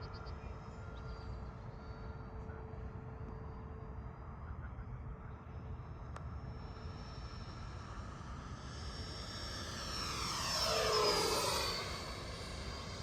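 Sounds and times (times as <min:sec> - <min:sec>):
model jet fan whining fly-by: 0:05.6 - 0:13.0.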